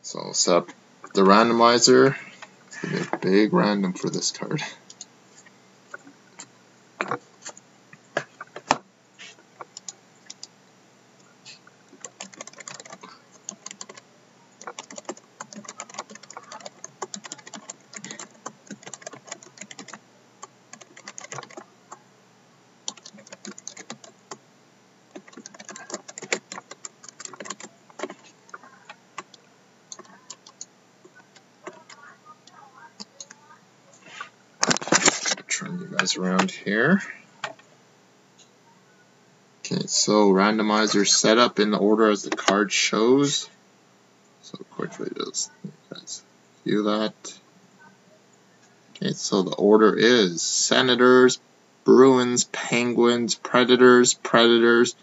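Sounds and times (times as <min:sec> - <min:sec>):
typing on computer keyboard: 0:12.0 - 0:14.0, 0:14.6 - 0:20.0, 0:20.7 - 0:21.7, 0:22.9 - 0:24.4, 0:25.1 - 0:28.6, 0:29.2 - 0:32.0.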